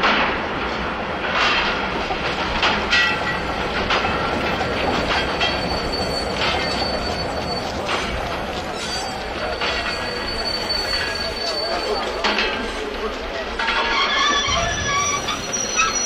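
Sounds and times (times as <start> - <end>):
railroad cars clanking and rattling: 0.0 - 16.0
metal wheel squeals: 3.0 - 12.9, 13.6 - 16.0.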